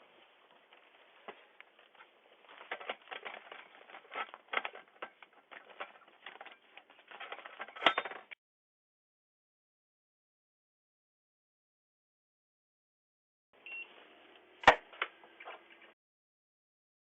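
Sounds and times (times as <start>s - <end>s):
irregular clicks and crackles: 0.0s - 8.4s.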